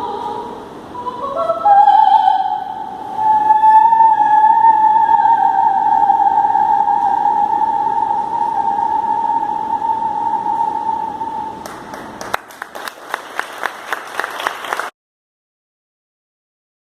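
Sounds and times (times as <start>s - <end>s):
person singing high operatic note: 0.0s - 11.6s
people clapping: 11.6s - 14.9s.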